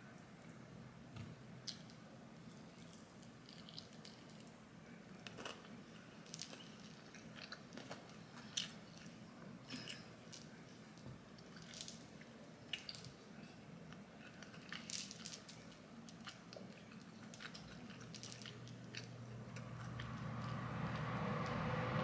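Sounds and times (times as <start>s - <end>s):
faint low hum: 0.0s - 22.0s
person chewing food: 13.9s - 20.6s.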